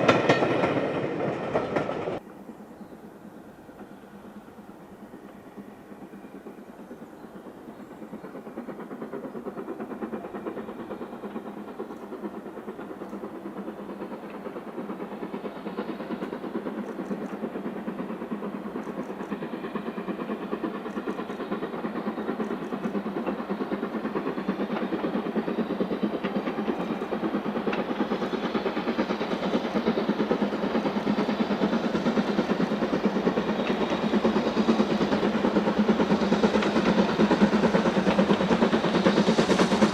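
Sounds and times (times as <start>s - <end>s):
train rolling on tracks: 0.0s - 39.9s.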